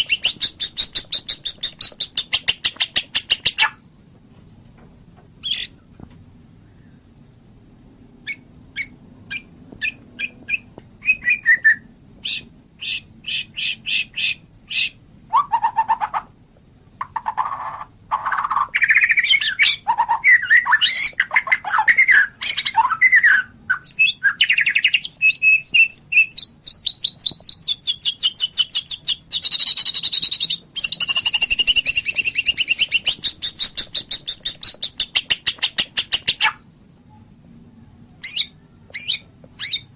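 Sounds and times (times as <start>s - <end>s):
bird chips: 0.0s - 3.8s, 17.0s - 36.6s
bird rattling trills: 0.0s - 3.8s, 25.6s - 36.6s
bird whistled phrases: 0.0s - 3.8s, 8.2s - 16.1s, 17.4s - 37.2s, 38.2s - 39.9s.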